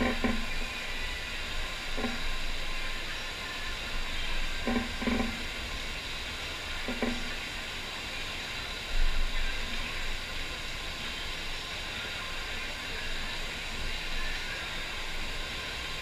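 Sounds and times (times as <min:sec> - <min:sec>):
water jetting hiss: 0:00.0 - 0:16.0.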